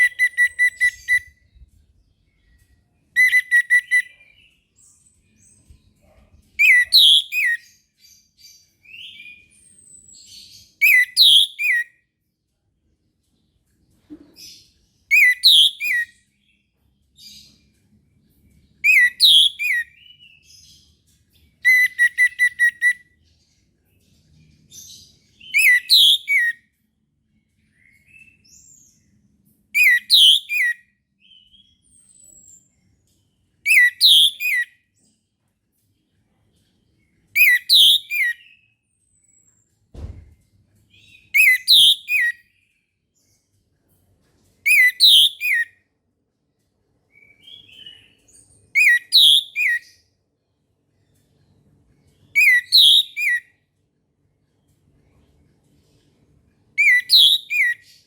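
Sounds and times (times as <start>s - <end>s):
low thump: 39.9s - 40.4s.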